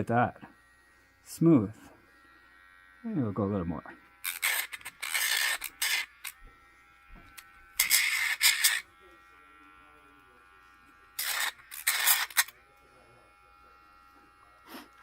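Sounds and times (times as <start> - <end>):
nail grinder whining: 0.4 - 9.0, 10.9 - 12.6
harsh grinding of nail: 4.2 - 6.4, 7.8 - 8.8, 11.2 - 12.5.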